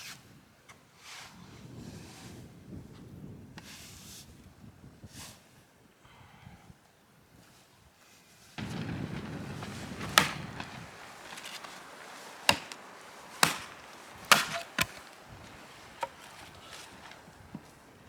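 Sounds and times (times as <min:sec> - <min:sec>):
blade chopping into wood: 0:08.6 - 0:17.7
rustling scraping handling noise: 0:08.6 - 0:18.0.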